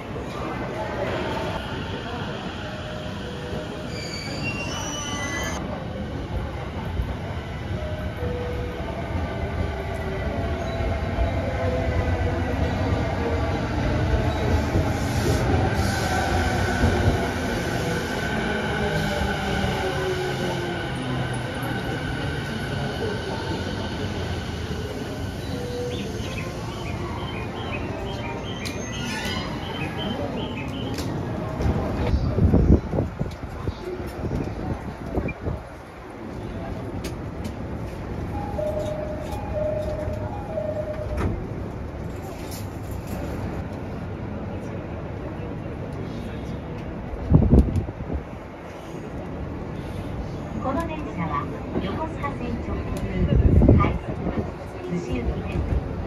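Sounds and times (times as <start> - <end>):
wheel squeal: 3.9 - 5.6.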